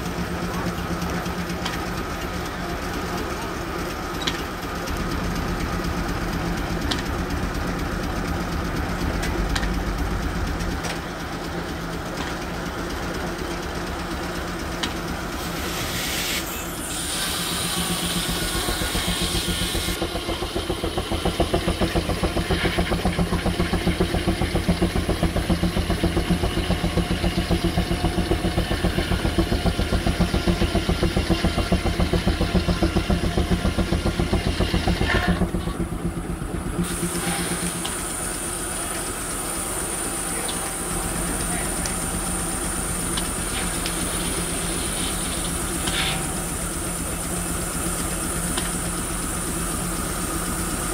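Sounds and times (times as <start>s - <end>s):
steam engine exhaust chuffing: 0.0s - 50.9s
steam hissing: 12.5s - 50.9s.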